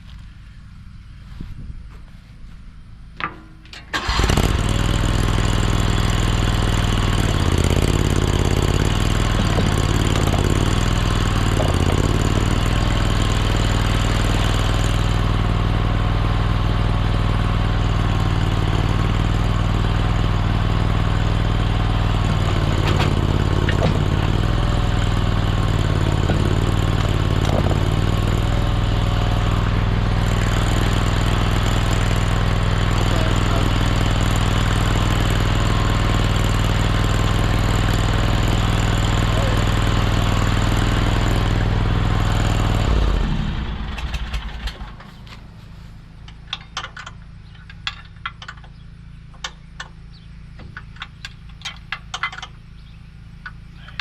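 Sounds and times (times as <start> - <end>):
skid steer engine running: 3.7 - 54.0.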